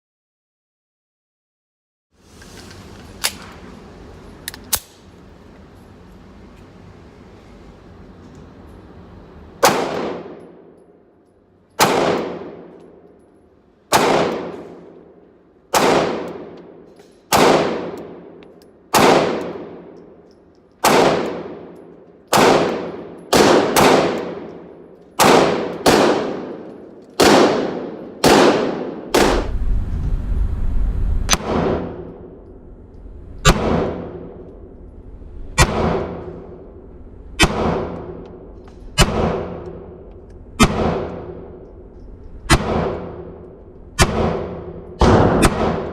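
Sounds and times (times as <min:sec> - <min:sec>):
handgun shots: 0:11.8 - 0:12.8, 0:15.7 - 0:16.7, 0:17.3 - 0:18.2, 0:18.9 - 0:19.8, 0:20.8 - 0:24.6, 0:44.0 - 0:45.9.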